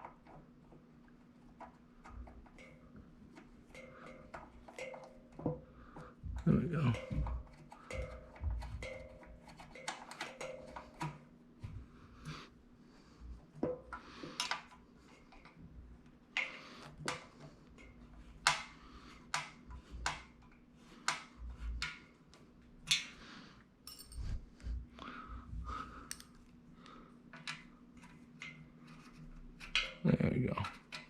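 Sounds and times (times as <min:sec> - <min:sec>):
metal parts and tools clinking: 0:23.8 - 0:24.3.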